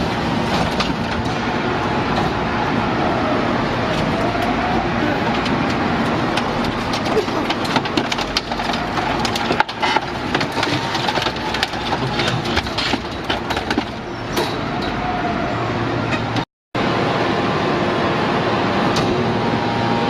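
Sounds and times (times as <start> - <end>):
metal cracking and crunching: 0.0 - 2.7, 3.7 - 15.1
hydraulic baler running: 0.0 - 20.0.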